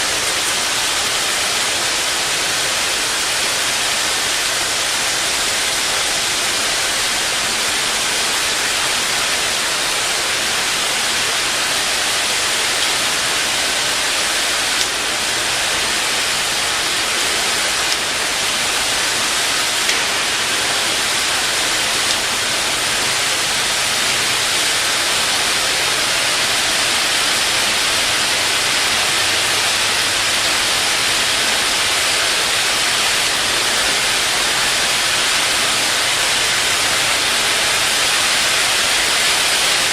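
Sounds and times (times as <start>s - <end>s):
drying machine hissing: 0.0s - 39.9s.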